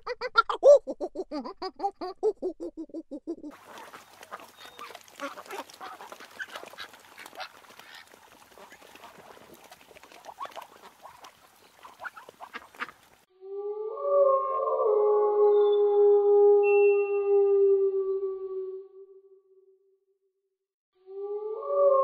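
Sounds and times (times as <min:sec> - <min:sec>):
water splashing: 0:03.5 - 0:13.3
geese honking: 0:03.6 - 0:13.2.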